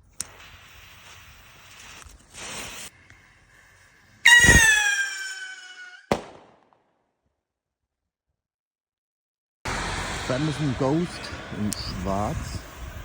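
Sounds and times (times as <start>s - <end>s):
firework fuse hiss: 0.0s - 6.1s, 9.7s - 13.0s
descending firework whistle: 4.2s - 6.4s
firework bang: 4.3s - 6.8s.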